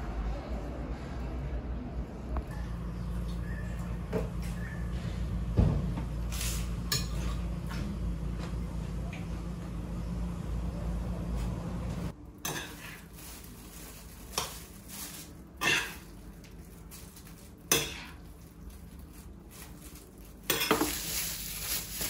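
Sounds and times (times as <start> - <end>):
steady low hum: 0.0 - 22.0
metal utensils clinking on dishes: 6.9 - 7.5, 15.6 - 16.1, 20.4 - 21.1.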